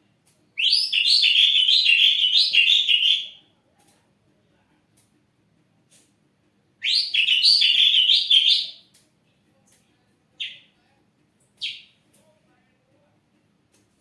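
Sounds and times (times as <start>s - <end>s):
bird singing rapid chirps: 0.6s - 3.3s, 6.8s - 8.8s.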